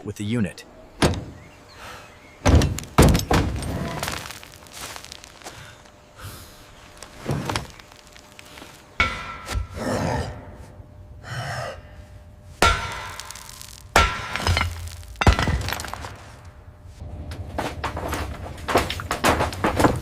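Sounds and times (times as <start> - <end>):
hard strikes on metal: 9.0 - 9.8, 12.6 - 15.5
glass breaking and clinking: 12.6 - 16.2
metal parts rattling clatter: 14.4 - 16.4.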